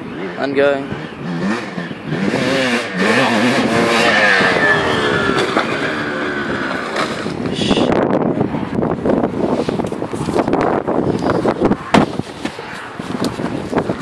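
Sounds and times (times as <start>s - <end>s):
motocross motorcycle engines revving: 0.0s - 8.5s.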